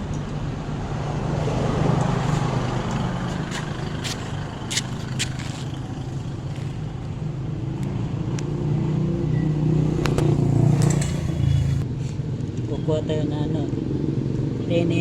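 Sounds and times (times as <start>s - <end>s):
vehicle engine running: 0.0s - 11.9s.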